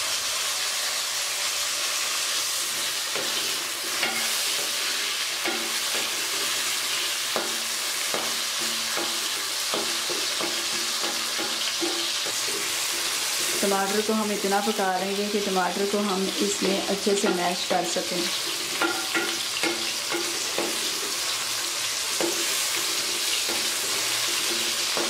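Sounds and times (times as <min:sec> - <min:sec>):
onions sizzling in hot oil: 0:00.0 - 0:25.0
wooden spatula scraping a pan: 0:02.5 - 0:14.1, 0:18.3 - 0:25.0.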